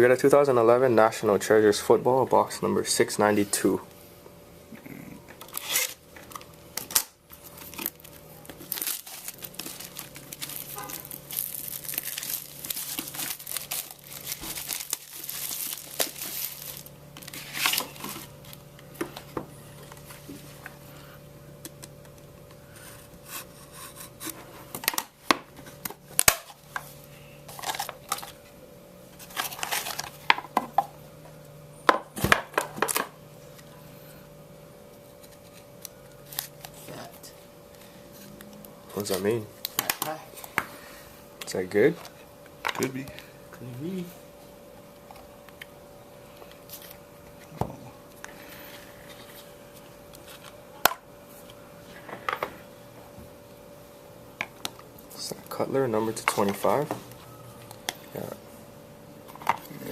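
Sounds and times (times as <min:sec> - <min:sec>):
faint steady hum: 0:00.0 - 0:59.9
plastic shrink wrap tearing: 0:05.4 - 0:06.0, 0:06.8 - 0:18.6.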